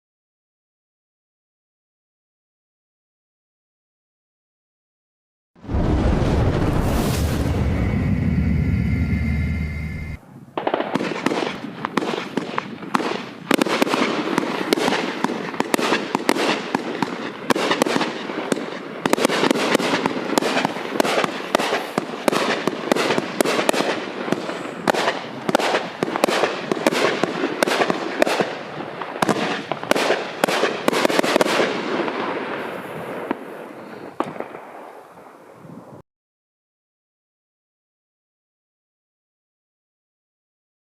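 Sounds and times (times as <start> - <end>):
firework crackling: 5.6 - 35.6
fireworks launching and bursting: 5.6 - 35.6.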